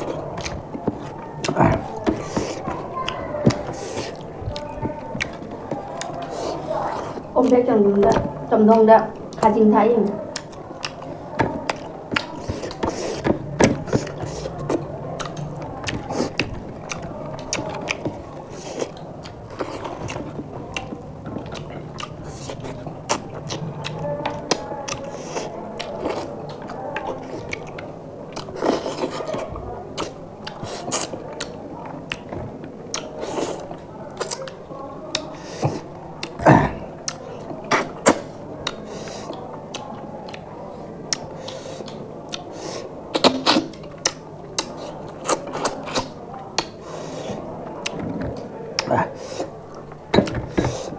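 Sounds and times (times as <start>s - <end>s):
chewing and lip-smacking: 0.0s - 50.9s
fingers mixing rice on plates: 0.0s - 50.9s.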